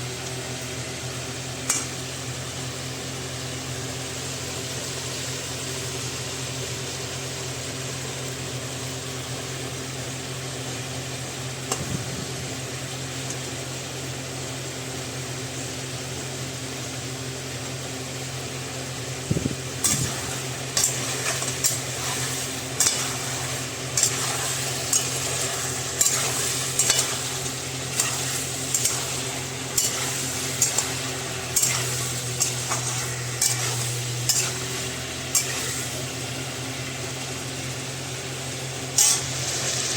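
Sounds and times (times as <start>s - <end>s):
food sizzling in a pan: 0.0s - 39.9s
spoon scraping and knocking pan: 19.8s - 36.0s.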